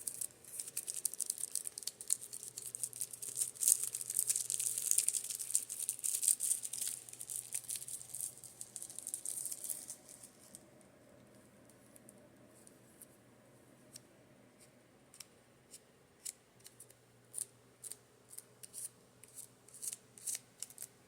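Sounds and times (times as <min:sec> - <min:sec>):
fan humming: 0:00.0 - 0:11.4.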